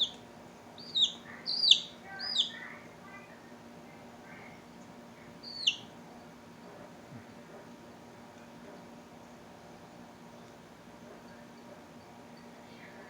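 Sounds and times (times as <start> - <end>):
baby bird chirping: 0.0 - 0.2, 0.8 - 2.8, 5.2 - 6.0.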